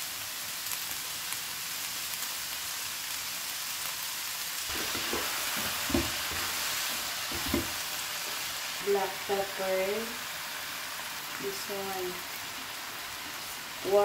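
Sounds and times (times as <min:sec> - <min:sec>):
vegetables sizzling in a wok: 0:00.0 - 0:14.0
wooden spatula scraping a wok: 0:04.7 - 0:08.5.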